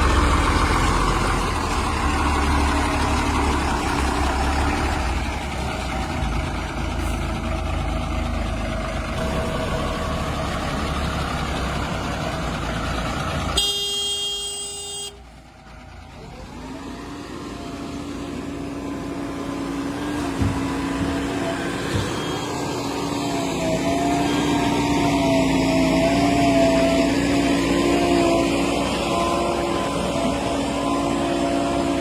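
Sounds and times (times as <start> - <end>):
engine tone wavering: 0.0 - 15.2, 15.8 - 32.0
heavy diesel machinery running: 0.0 - 32.0
vehicle horn blast: 13.6 - 15.2.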